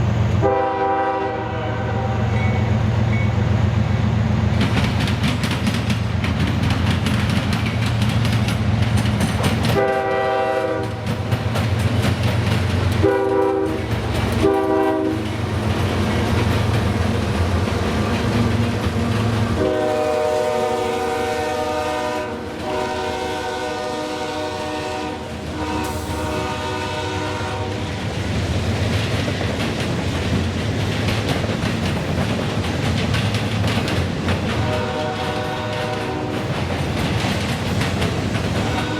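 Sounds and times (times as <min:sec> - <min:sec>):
passing train rumble: 0:00.0 - 0:38.9
train air horn blasts: 0:00.4 - 0:02.7, 0:09.7 - 0:11.2, 0:13.0 - 0:15.5, 0:19.4 - 0:27.9, 0:34.6 - 0:36.5, 0:38.6 - 0:38.9.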